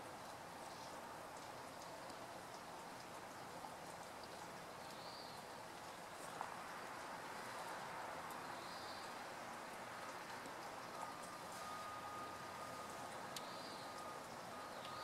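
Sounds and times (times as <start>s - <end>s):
faint outdoor hiss: 0.0s - 15.0s
light ticks: 0.2s - 5.2s, 5.8s - 9.2s, 10.0s - 15.0s
faint bird chirps: 10.8s - 15.0s.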